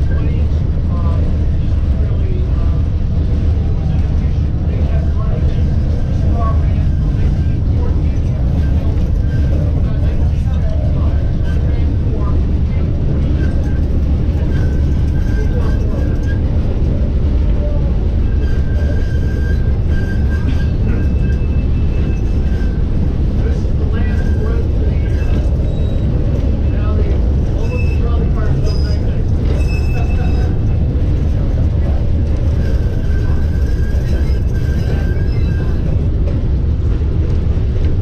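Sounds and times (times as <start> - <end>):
streetcar rumbling on track: 0.0 - 38.0
wheels squealing: 13.1 - 17.0, 17.6 - 36.2.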